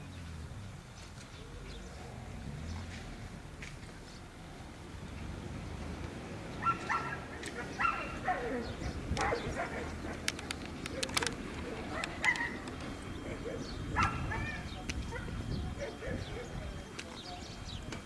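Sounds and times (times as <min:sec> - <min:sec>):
dog barking: 0:06.6 - 0:10.2, 0:10.9 - 0:12.6, 0:13.3 - 0:16.6
sharp clicks: 0:10.1 - 0:12.9.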